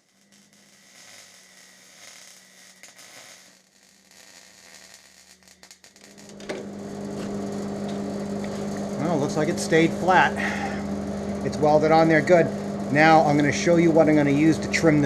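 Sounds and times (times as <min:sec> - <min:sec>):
welding arc crackling: 0:00.0 - 0:15.0
machine hum: 0:05.0 - 0:15.0.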